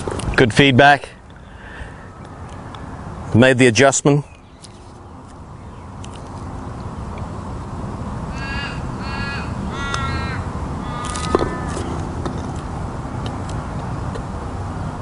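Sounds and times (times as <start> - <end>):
outdoor ambience: 0.0 - 15.0
bird cawing: 8.3 - 12.2.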